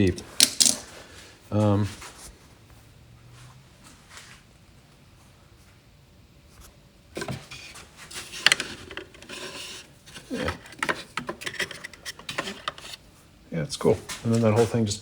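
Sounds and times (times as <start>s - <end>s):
wooden pieces knocking and rubbing: 0.0s - 0.9s, 7.2s - 13.0s.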